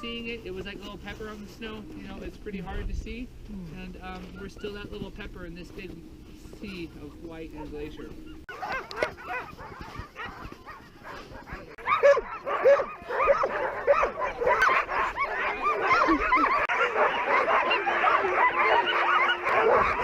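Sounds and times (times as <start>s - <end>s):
sled dogs yelping and barking: 4.0s - 20.0s.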